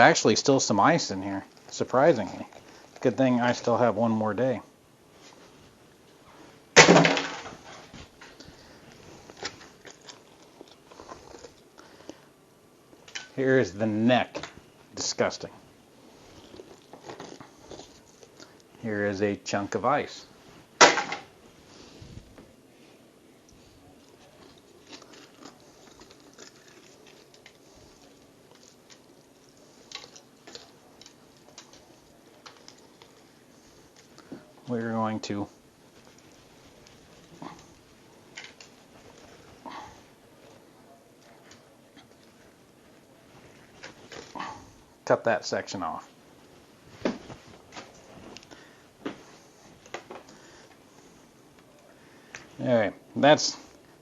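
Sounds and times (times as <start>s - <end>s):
wet clicks and crackles: 24.0s - 34.4s, 35.9s - 39.4s.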